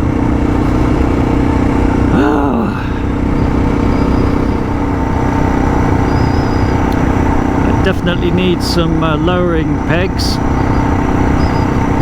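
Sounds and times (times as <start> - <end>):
motorcycle engine running: 0.0 - 12.0
road rumble: 0.0 - 12.0.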